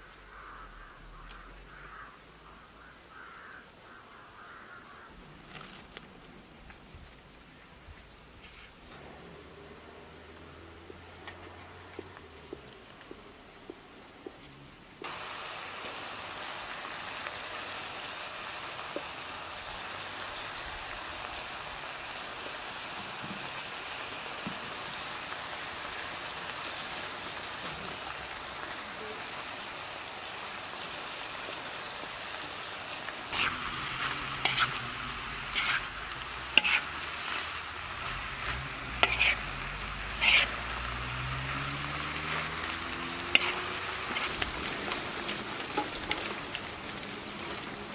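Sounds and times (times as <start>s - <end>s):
food sizzling in a pan: 15.0s - 47.9s
utensils scraping and tapping pan: 33.4s - 34.8s, 35.5s - 39.5s, 40.1s - 40.6s, 42.6s - 44.5s, 45.7s - 46.3s.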